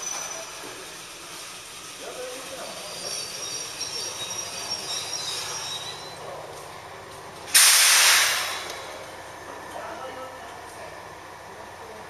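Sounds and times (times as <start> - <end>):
train wheels and brakes squealing: 0.0 - 1.0, 2.1 - 6.5, 7.5 - 8.7
compressed air hiss: 7.6 - 8.7.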